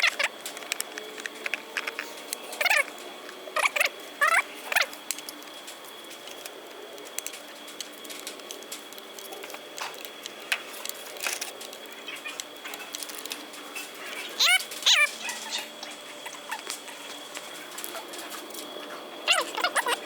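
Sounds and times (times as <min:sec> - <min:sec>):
dog whining: 0:14.2 - 0:17.1, 0:19.3 - 0:20.0.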